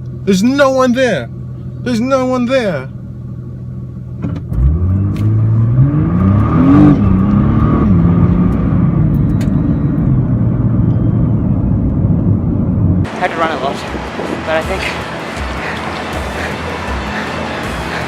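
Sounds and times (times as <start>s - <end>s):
car engine accelerating hard: 4.1s - 18.0s.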